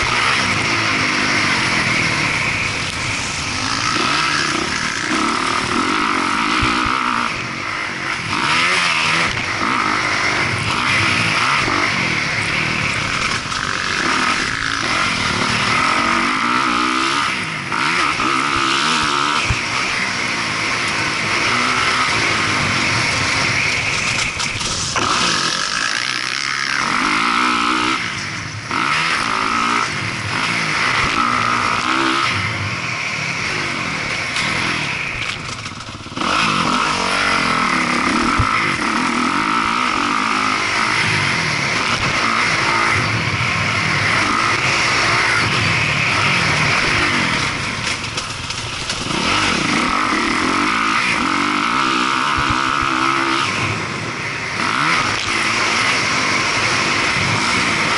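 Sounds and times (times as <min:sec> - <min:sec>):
dirt bike engine revving: 0:00.0 - 0:57.9.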